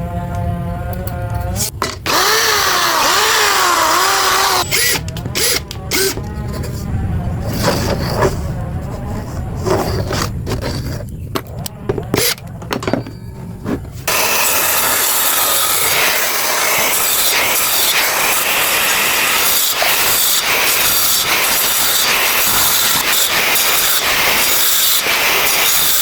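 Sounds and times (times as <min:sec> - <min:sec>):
low tool hum: 0:00.0 - 0:24.4
loud hissing rasp: 0:02.1 - 0:06.8, 0:14.0 - 0:26.0.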